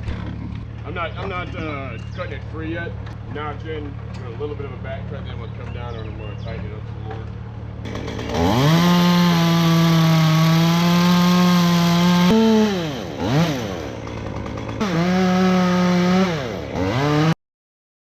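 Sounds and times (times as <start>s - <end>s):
chainsaw cutting tree trunk: 7.8s - 17.4s.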